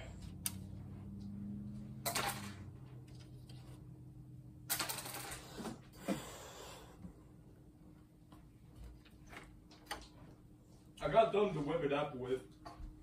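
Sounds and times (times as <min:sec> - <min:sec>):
low hum: 0:00.0 - 0:05.0
tools and parts clattering: 0:01.9 - 0:03.8, 0:04.6 - 0:05.8.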